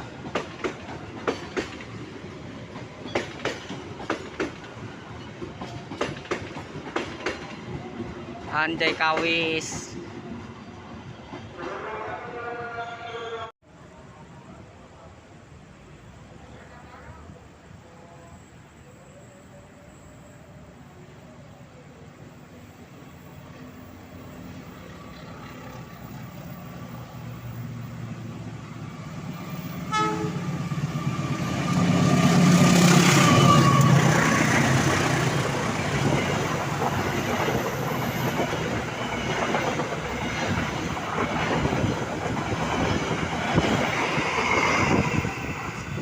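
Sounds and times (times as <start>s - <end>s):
train wheels rumbling on rails: 0.0s - 12.0s, 23.1s - 46.0s
train engine hum: 0.0s - 46.0s
train horn toot: 11.5s - 13.5s, 29.9s - 30.5s.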